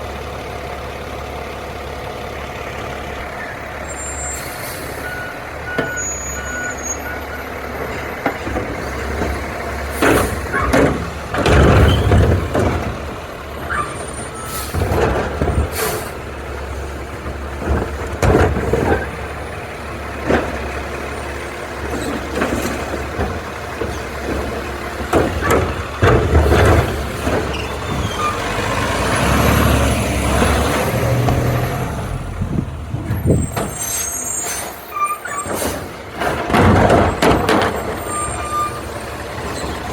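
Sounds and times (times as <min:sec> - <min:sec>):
diesel engine running: 0:00.0 - 0:39.9
air brake hisses: 0:04.1 - 0:05.1
metal clanks and bangs: 0:07.8 - 0:29.4, 0:32.4 - 0:39.9.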